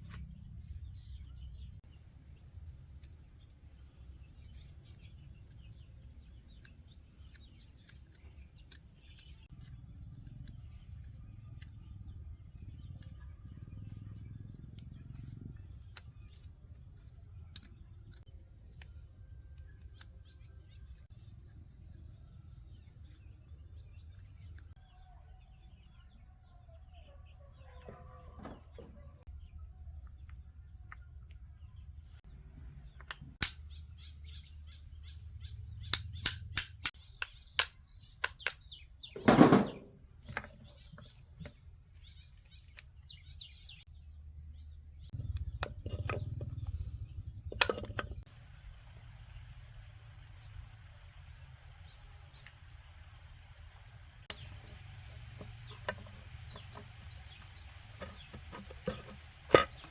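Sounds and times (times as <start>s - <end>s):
insects chirring: 0.0s - 59.9s
sharp clicks and knocks: 47.5s - 48.2s.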